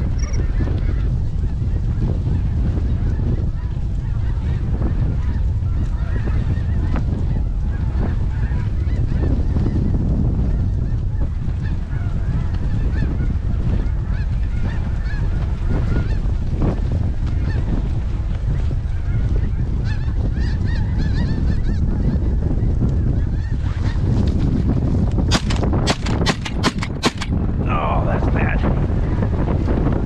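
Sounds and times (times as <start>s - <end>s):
wind rumble on microphone: 0.0s - 30.0s
sharp bangs: 25.3s - 27.4s.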